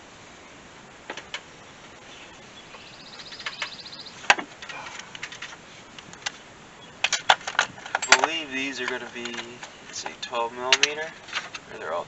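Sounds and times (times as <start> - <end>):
metal hand tools clinking: 7.0 - 11.8.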